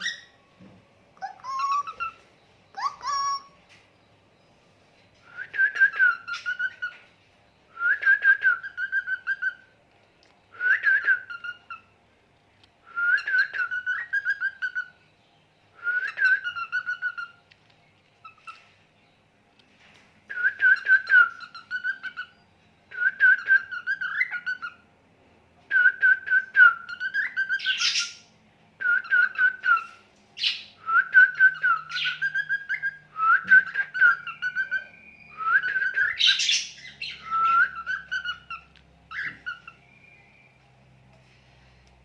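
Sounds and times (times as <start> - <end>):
birds chirping: 0.0 - 42.0
harsh bird calls: 1.2 - 4.6.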